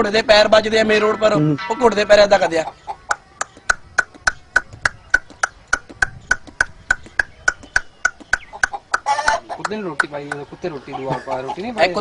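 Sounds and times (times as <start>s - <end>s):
man imitating clip-clop hoofbeats: 3.1s - 10.5s.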